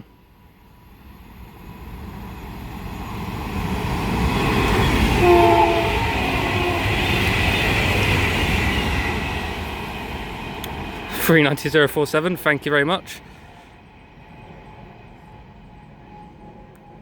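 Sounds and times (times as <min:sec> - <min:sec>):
electric train passing: 0:00.0 - 0:17.0
train horn blast: 0:04.7 - 0:07.6.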